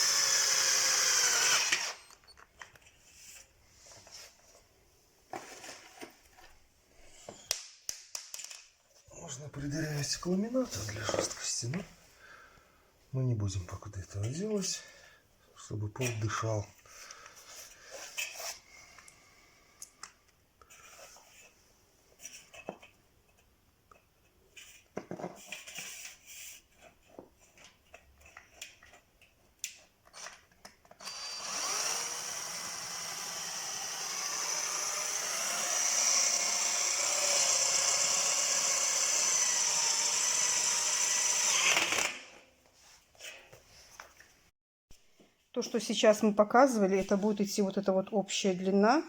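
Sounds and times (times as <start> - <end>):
power drill spinning: 0.0 - 2.4, 30.1 - 42.4.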